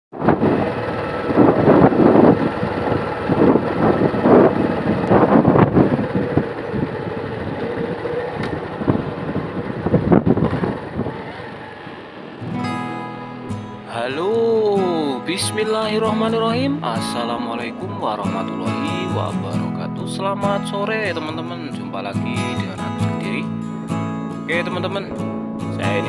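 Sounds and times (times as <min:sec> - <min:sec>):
wind buffeting microphone: 0:00.1 - 0:12.6
vehicle engine hum: 0:00.1 - 0:26.0.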